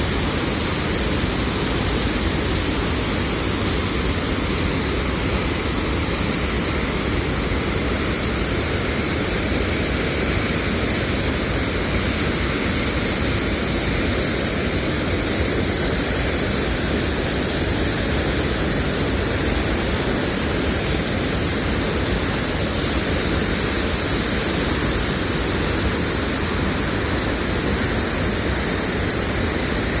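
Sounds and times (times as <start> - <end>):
floodwater rushing through spillway: 0.0 - 30.0.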